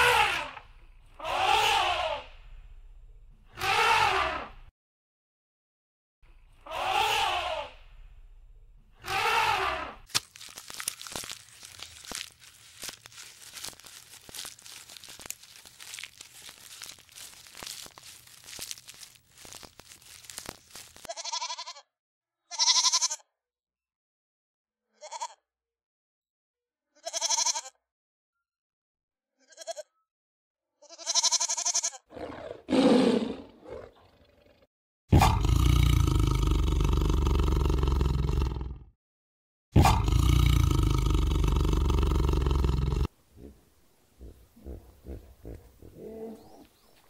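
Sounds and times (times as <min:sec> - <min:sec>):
crackling and crunching: 0:10.0 - 0:21.1
young goats bleating: 0:11.6 - 0:21.8, 0:22.5 - 0:23.2, 0:27.0 - 0:27.7, 0:29.4 - 0:29.9, 0:30.8 - 0:32.0
tiger growl: 0:32.1 - 0:38.9, 0:39.8 - 0:46.6.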